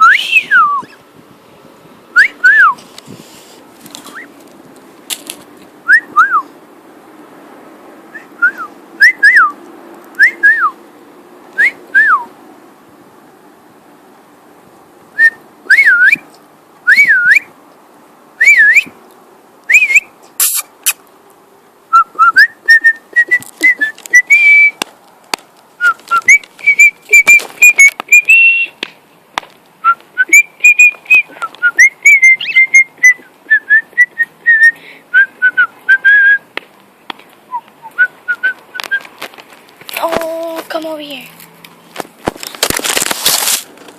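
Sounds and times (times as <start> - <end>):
cockatiel whistling: 29.8 - 36.4.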